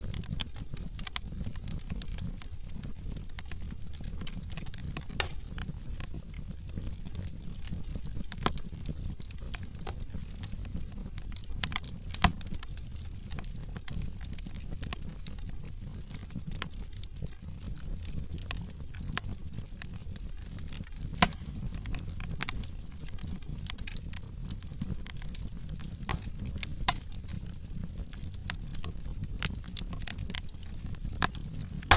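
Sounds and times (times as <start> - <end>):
wood logs crackling in fireplace: 0.0 - 31.9
loud wood snaps: 4.6 - 5.7, 11.6 - 12.6, 21.1 - 22.6, 26.0 - 27.2.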